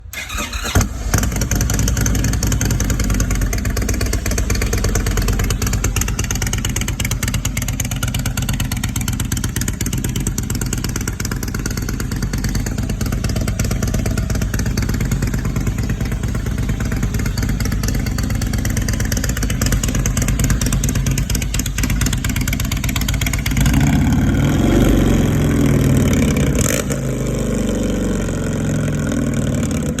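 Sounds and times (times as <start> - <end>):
motorcycle engine idling and revving: 0.2 - 30.0.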